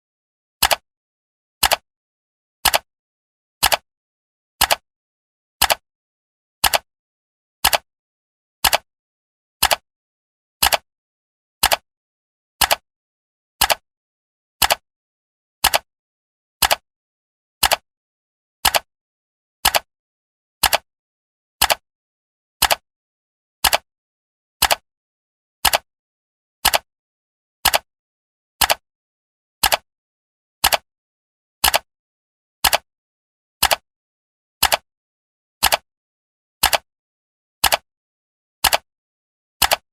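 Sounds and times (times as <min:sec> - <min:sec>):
clock ticking: 0:16.6 - 0:16.8, 0:22.6 - 0:22.8, 0:23.6 - 0:23.8, 0:24.6 - 0:24.8, 0:25.6 - 0:25.8, 0:27.6 - 0:27.8, 0:29.6 - 0:29.8, 0:30.6 - 0:30.8, 0:31.6 - 0:31.9, 0:33.6 - 0:33.8, 0:34.6 - 0:34.8, 0:35.6 - 0:35.8, 0:36.6 - 0:36.9, 0:37.6 - 0:37.8, 0:38.6 - 0:38.9, 0:39.6 - 0:39.8.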